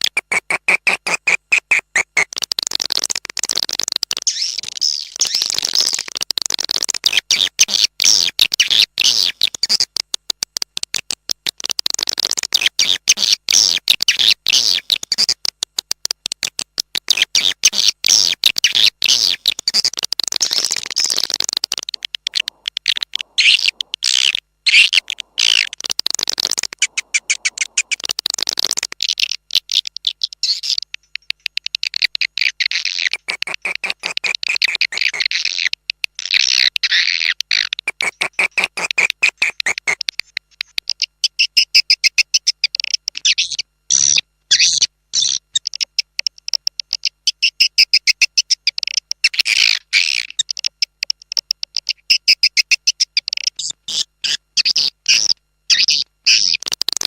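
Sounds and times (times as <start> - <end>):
swiftlets chattering chirps: 18.6 - 31.6.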